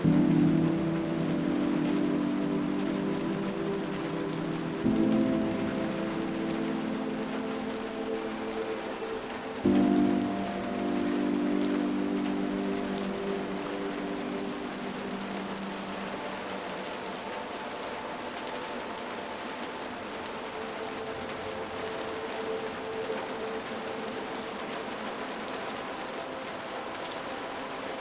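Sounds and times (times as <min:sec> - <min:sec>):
soft ambient music pad: 0:00.0 - 0:28.0
steady rain falling: 0:00.0 - 0:28.0.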